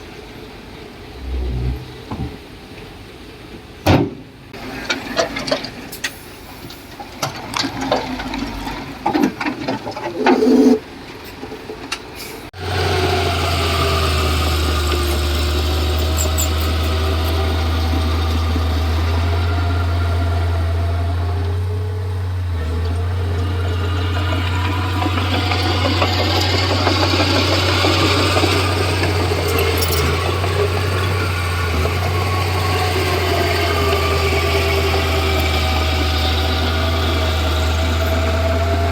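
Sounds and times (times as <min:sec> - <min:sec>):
bulldozer diesel engine humming: 0:00.1 - 0:03.4, 0:12.6 - 0:38.9.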